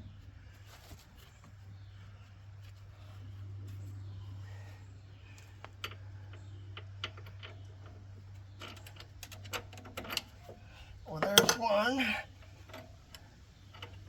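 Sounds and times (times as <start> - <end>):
steady low hum: 0.0 - 14.0
clicks and taps of metal tools: 11.2 - 11.6.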